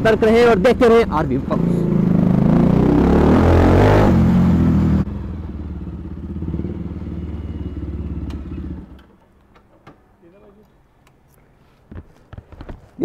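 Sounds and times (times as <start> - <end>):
loud motorcycle engine: 0.0 - 9.0
motorcycle engine idling: 4.8 - 9.0.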